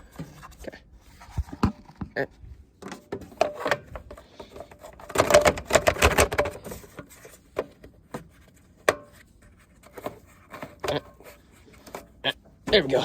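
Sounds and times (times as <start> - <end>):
lawn mower parts knocking: 2.8 - 9.2.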